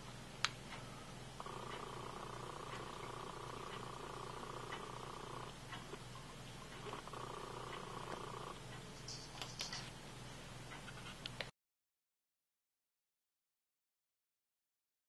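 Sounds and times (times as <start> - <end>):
disc sander motor humming: 1.4 - 9.0.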